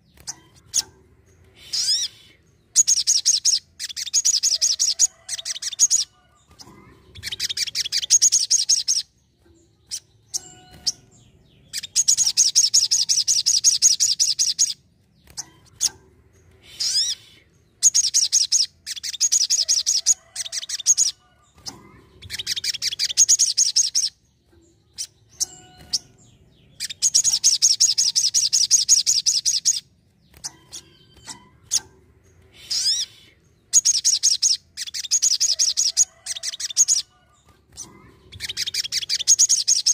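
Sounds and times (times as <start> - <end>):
bird trilling: 1.6 - 9.1, 16.7 - 24.2, 25.0 - 32.0, 32.6 - 39.9.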